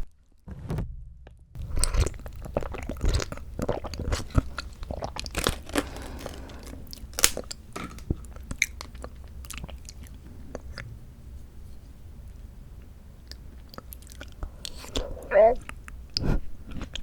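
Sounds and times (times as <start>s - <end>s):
wet chewing and biting: 1.6s - 10.9s, 13.2s - 17.0s.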